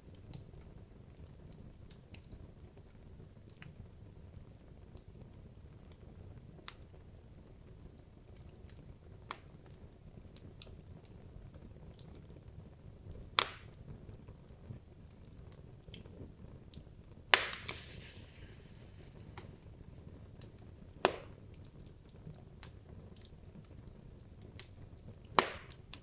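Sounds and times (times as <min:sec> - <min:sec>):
wood fire burning: 0:15.2 - 0:22.3
sharp pops from fire: 0:17.3 - 0:21.8, 0:25.4 - 0:26.0.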